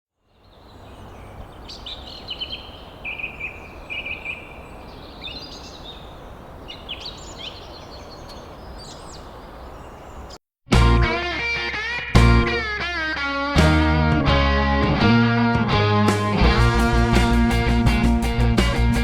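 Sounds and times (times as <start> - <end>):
birds singing: 0.2 - 10.4.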